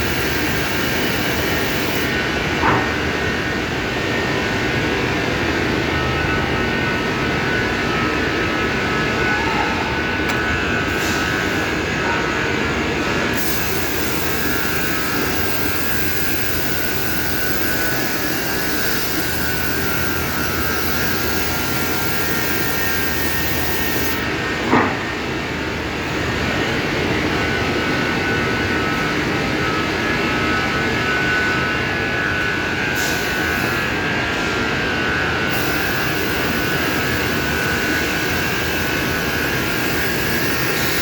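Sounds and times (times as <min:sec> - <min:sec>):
robot vacuum cleaner whirring: 0:13.4 - 0:24.2.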